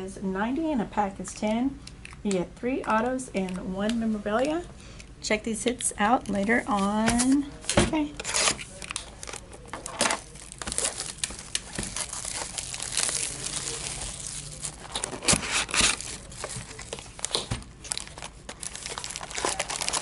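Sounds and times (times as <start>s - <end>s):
plastic wrapping crinkling: 6.2s - 20.0s.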